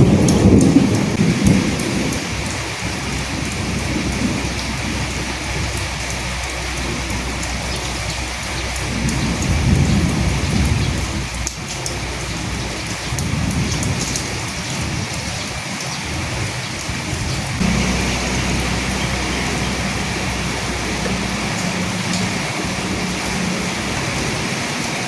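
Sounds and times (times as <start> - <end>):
steady rain falling: 0.0 - 25.0
low rumble: 17.6 - 24.8
steady low hum: 17.6 - 24.8.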